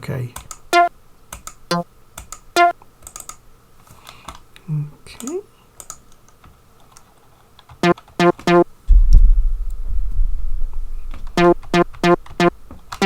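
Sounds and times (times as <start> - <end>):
short pitched synth notes: 8.2 - 12.6
deep low rumble: 8.9 - 12.0.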